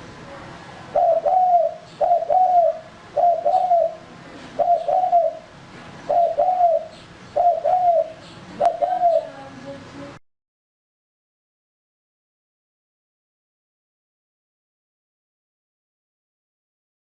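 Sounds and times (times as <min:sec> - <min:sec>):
dove cooing: 0:00.9 - 0:09.6.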